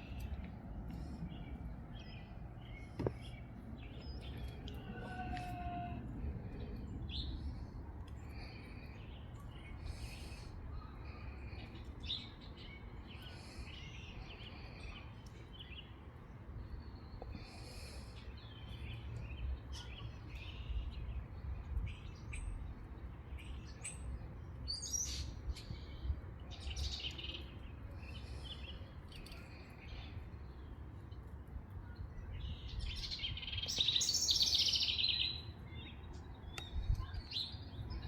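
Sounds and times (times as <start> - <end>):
songbirds chirping and singing: 0.0 - 38.0
wind rumble on microphone: 19.1 - 24.6, 31.1 - 34.0, 35.5 - 38.0.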